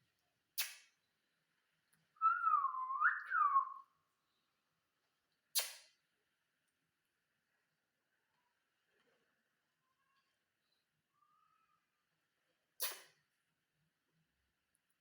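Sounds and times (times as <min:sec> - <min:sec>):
parrot whistling: 0:02.2 - 0:03.8.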